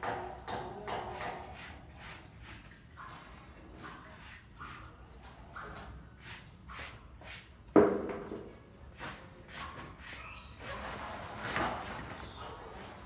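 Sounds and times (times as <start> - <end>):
knocks and taps from building work: 0.0 - 1.8, 7.7 - 10.2.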